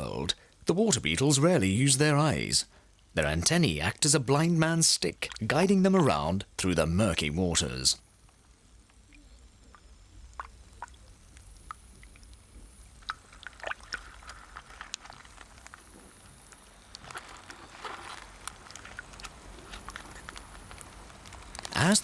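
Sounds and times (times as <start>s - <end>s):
small clicks and drips: 5.2s - 5.6s, 8.2s - 21.9s
water trickling and bubbling: 8.8s - 21.9s.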